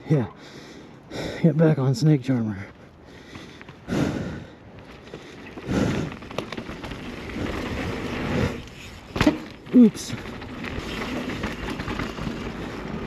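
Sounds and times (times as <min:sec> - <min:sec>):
bike tyres on dirt: 0:02.3 - 0:13.0
bike clicks and rattles: 0:03.1 - 0:13.0.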